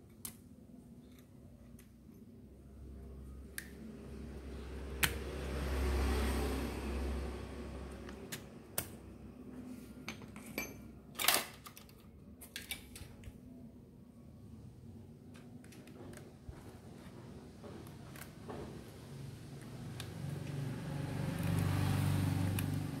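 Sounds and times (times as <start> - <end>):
tools clattering: 10.1 - 13.1
metal parts clicking and clinking: 10.1 - 13.4.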